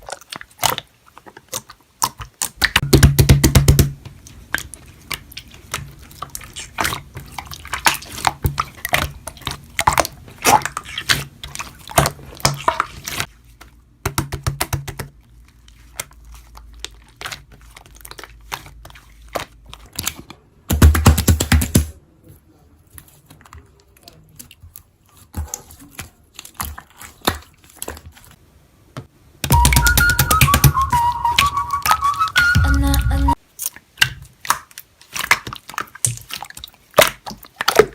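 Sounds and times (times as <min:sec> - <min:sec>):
slime squishing: 0:00.0 - 0:21.3, 0:22.2 - 0:28.4, 0:32.8 - 0:37.9
background music: 0:29.5 - 0:33.4.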